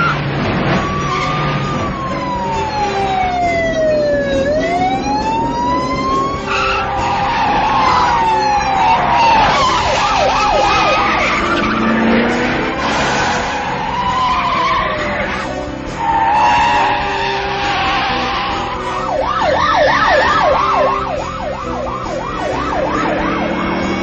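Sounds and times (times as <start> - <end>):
car engine revving: 0.0 - 21.1, 22.0 - 24.0
tyres squealing: 6.2 - 19.2.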